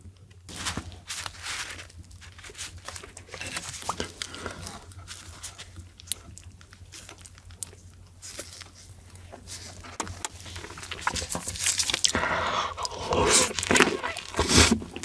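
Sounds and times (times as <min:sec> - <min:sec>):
chewing crunchy food: 0:00.1 - 0:15.0.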